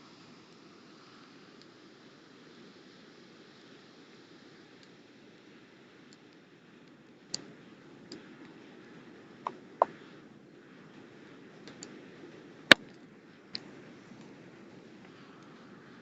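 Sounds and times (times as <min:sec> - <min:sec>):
low steady hiss: 0:00.0 - 0:16.0.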